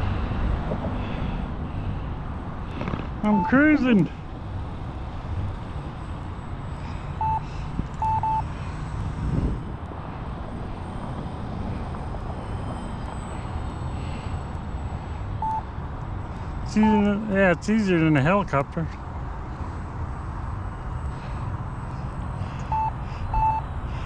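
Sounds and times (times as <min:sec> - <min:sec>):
short high beeps: 0:03.3 - 0:03.7, 0:07.2 - 0:08.5, 0:15.4 - 0:15.6, 0:16.7 - 0:17.3, 0:22.7 - 0:23.6
wind rumbling on microphone: 0:08.8 - 0:13.8.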